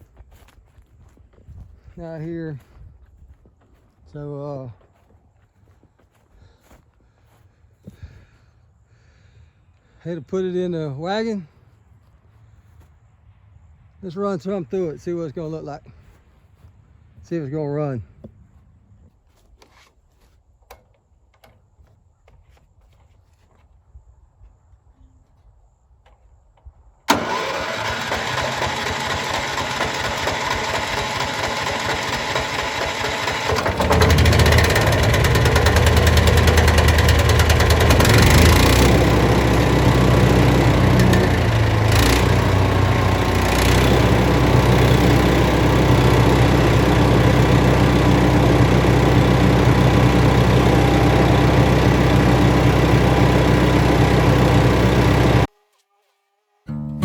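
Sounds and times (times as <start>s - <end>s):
small gasoline engine running: 27.1s - 55.5s.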